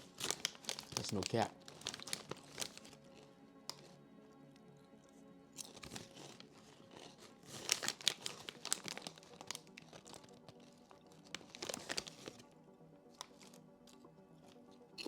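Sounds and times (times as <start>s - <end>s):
snack bag crinkling: 0.0s - 3.9s, 5.6s - 12.5s, 13.2s - 13.6s
quiet background music: 0.0s - 15.0s.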